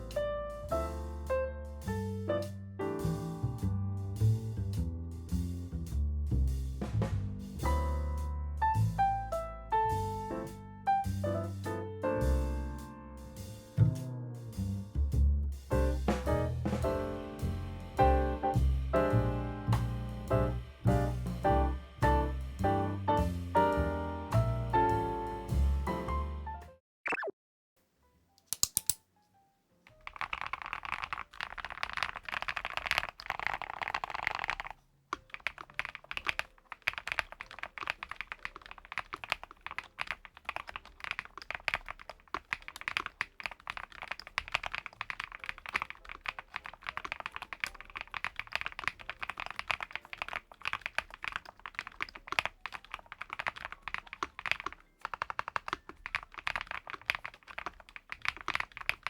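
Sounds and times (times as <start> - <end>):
mechanical keyboard typing: 28.4 - 29.0, 29.9 - 59.0.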